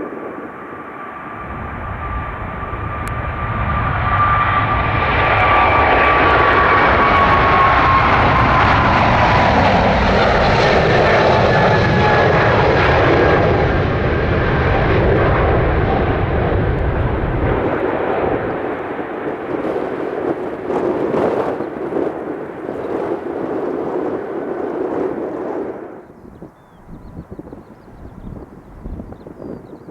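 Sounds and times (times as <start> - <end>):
jet airliner engines rumbling: 0.0 - 29.9.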